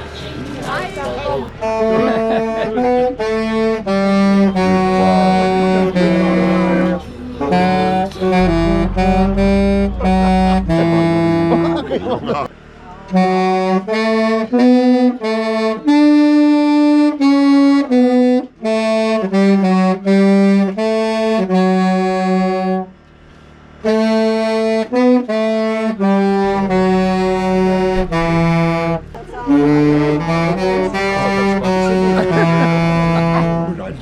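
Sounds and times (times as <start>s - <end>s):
wind instrument slow melody: 1.6s - 12.0s, 23.8s - 33.8s.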